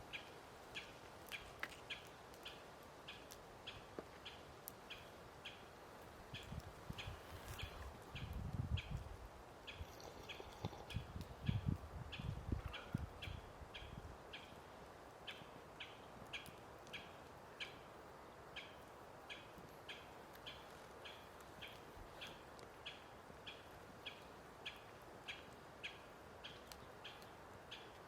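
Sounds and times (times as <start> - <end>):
faint outdoor background hiss: 0.0 - 28.0
bird chirping: 9.7 - 14.5.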